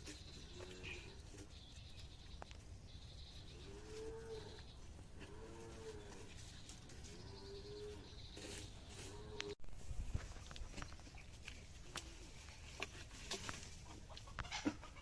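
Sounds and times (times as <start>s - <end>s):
farm animals calling: 0.0s - 9.6s, 12.3s - 15.0s.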